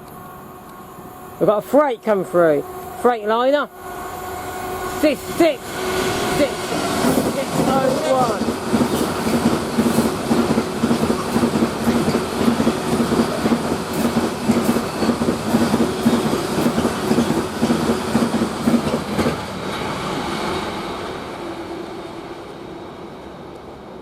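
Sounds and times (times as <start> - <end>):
freight train wagons clattering: 6.3 - 19.8.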